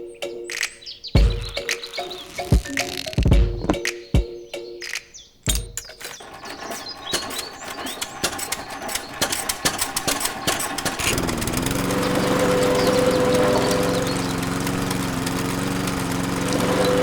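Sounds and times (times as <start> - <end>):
small engine starting and running: 1.2 - 3.3, 5.5 - 17.0
clicks and knocks: 5.4 - 11.2.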